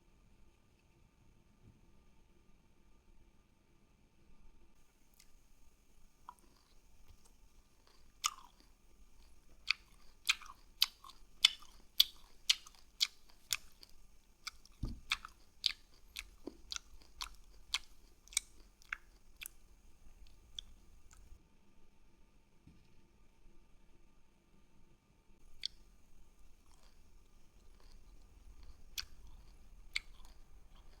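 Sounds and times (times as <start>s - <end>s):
crisp wet chewing clicks: 6.3s - 21.4s, 25.4s - 31.0s.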